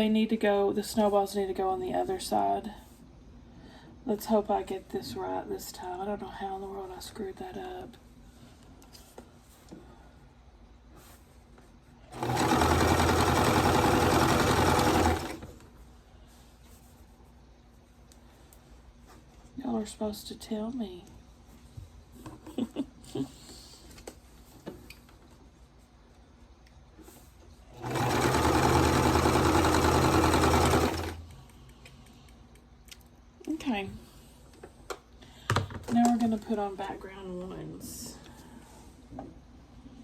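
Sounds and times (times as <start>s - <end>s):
sewing machine running: 12.1s - 15.6s, 27.7s - 31.2s.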